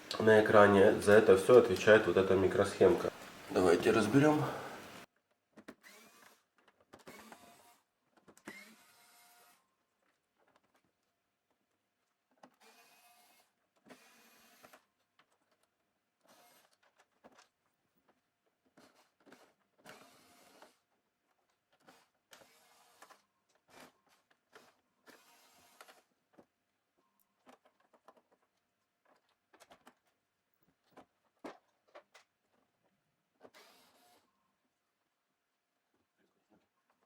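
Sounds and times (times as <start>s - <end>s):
electric screwdriver whirring: 5.7s - 9.6s, 12.6s - 14.8s, 16.2s - 16.8s, 18.8s - 20.8s, 21.8s - 26.1s, 33.4s - 34.3s
clicks and knocks of plastic and metal: 10.0s - 12.6s, 14.6s - 19.9s, 21.2s - 33.6s.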